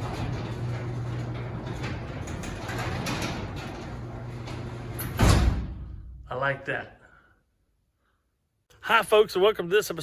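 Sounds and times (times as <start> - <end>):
garage door rollers rattling: 0.0 - 5.7
garage door motor hum: 0.0 - 6.1.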